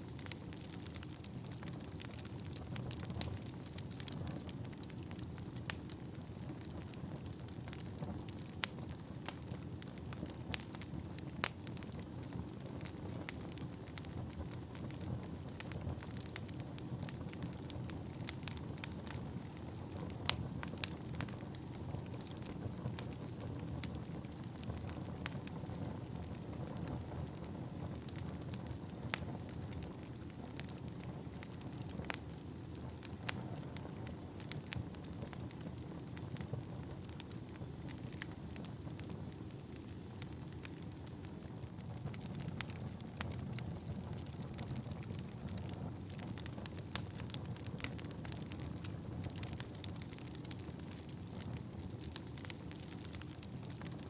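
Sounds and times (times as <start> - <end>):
low rumble of flames: 0.0 - 54.0
wood fire crackling and popping: 0.0 - 54.0
faint high whistle: 35.9 - 41.7.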